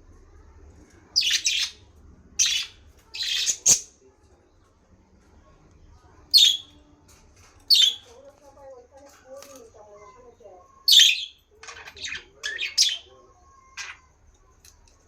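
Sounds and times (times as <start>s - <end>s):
bird harsh calls: 1.2s - 1.8s, 2.4s - 3.9s, 6.3s - 6.8s, 10.8s - 14.1s.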